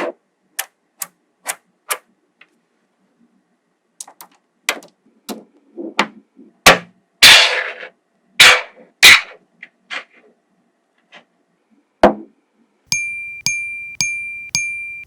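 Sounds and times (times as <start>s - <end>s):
magnetic balls clicking together: 12.9s - 15.0s.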